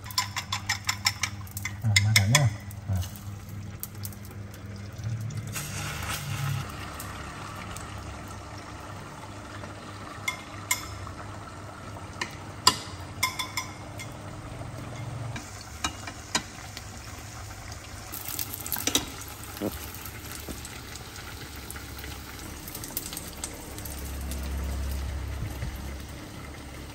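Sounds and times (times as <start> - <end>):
chopsticks tapping against a pan: 0.0 - 2.6, 12.2 - 14.1
egg frying softly in a pan: 0.0 - 26.9.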